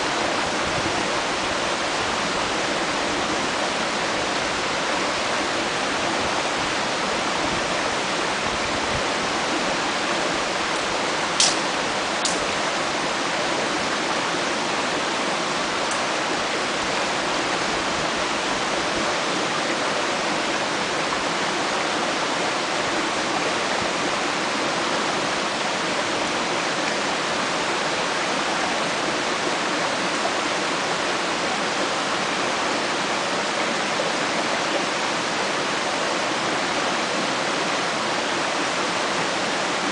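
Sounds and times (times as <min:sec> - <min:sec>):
mountain stream rushing: 0:00.0 - 0:39.9
campfire snaps: 0:11.4 - 0:11.6, 0:12.2 - 0:12.5.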